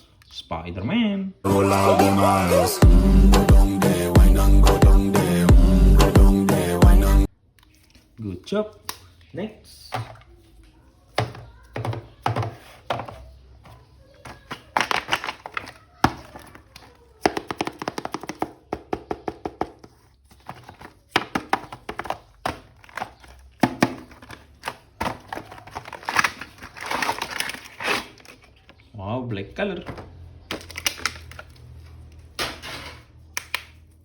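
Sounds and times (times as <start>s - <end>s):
plastic packaging clicking and crinkling: 14.2s - 18.6s, 19.9s - 28.9s, 30.4s - 32.3s.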